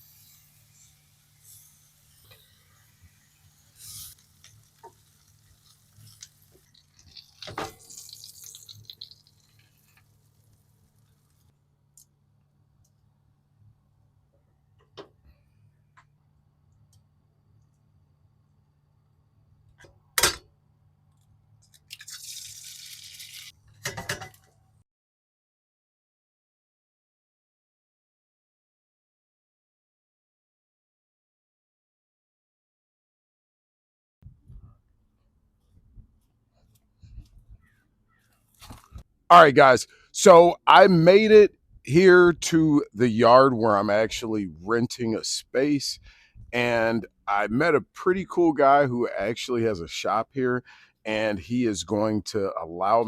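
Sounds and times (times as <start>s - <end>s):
liquid pouring: 4.1s - 11.4s, 21.8s - 23.5s
kitchen clatter: 22.9s - 24.5s.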